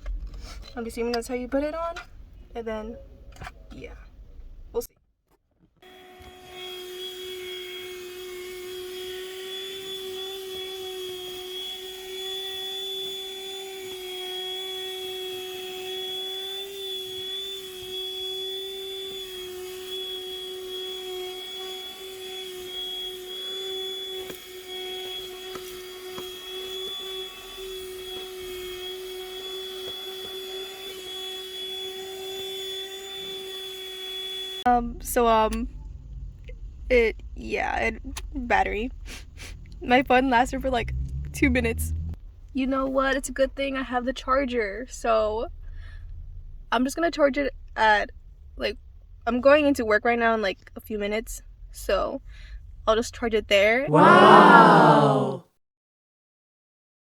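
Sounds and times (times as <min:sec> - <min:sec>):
handheld vacuum motor whining: 0:05.8 - 0:34.7.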